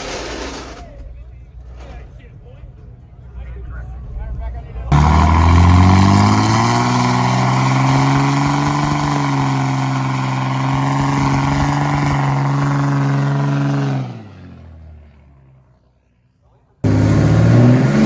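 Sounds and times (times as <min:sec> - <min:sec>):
diesel pickup engine revving: 0:04.9 - 0:15.6, 0:16.8 - 0:18.0.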